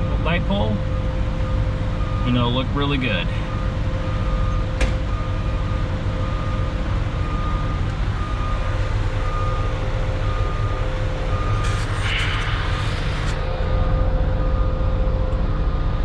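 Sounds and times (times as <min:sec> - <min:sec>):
backup alarm beeping: 0:00.0 - 0:15.8
truck diesel engine running: 0:00.0 - 0:16.0
hiss with clicks: 0:11.6 - 0:13.4.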